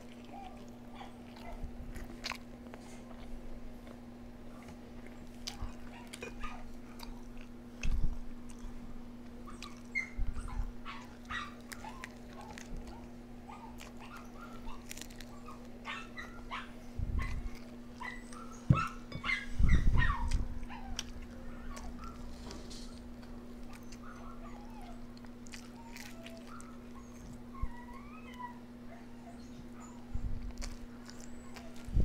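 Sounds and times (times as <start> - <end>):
steady low hum: 0.0 - 32.0
dog whining and yipping: 0.1 - 1.6, 5.5 - 6.7, 9.4 - 32.0
dull thumps: 18.7 - 19.3.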